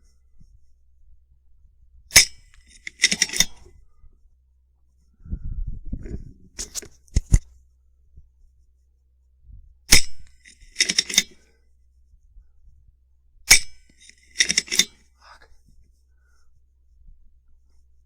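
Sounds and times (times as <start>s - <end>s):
metallic clicks of rifle lever: 2.1s - 3.7s, 6.1s - 7.5s, 9.9s - 11.5s, 13.5s - 15.1s
wind rumble on microphone: 5.1s - 7.4s, 9.4s - 9.9s.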